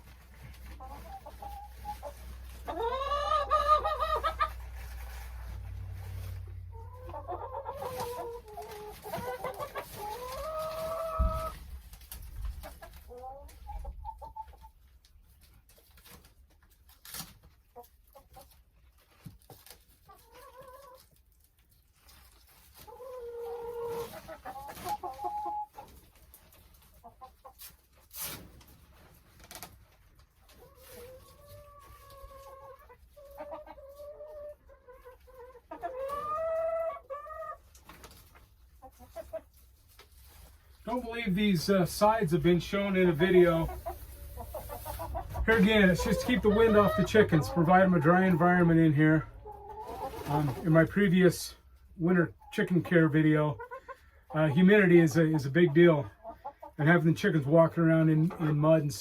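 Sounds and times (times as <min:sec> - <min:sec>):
hens clucking: 0:00.0 - 0:28.0, 0:29.9 - 0:59.0.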